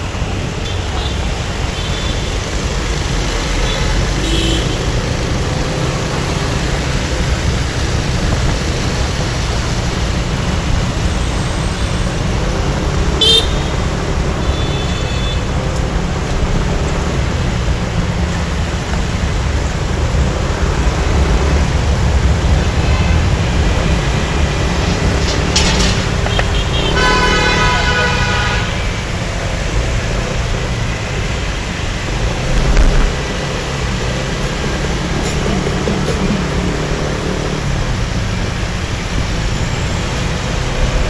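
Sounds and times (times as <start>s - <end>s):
vehicle horn honking: 3.6s - 5.0s, 13.2s - 15.5s, 25.2s - 29.1s.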